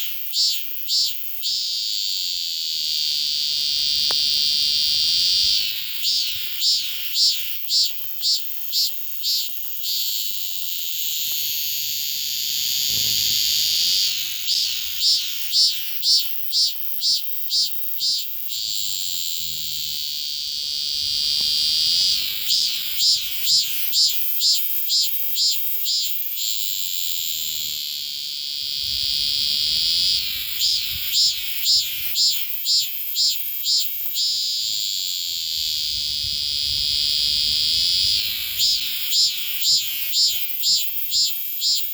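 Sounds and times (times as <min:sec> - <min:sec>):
cicada singing: 0:00.0 - 0:41.9.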